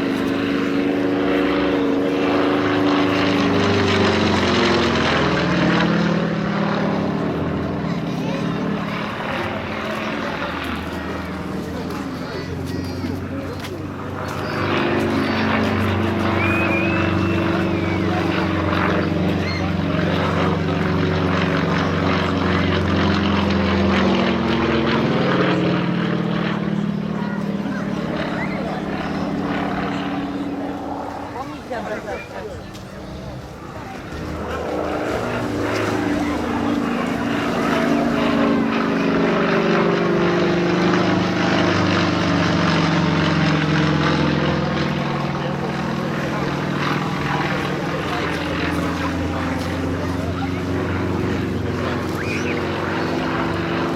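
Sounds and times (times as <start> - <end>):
propeller aircraft engine drone: 0.0 - 53.9.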